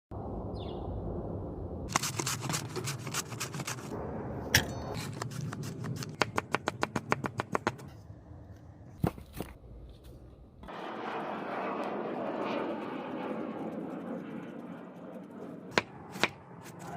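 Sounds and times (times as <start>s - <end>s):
knife chopping on cutting board: 5.6s - 7.8s, 15.7s - 16.4s.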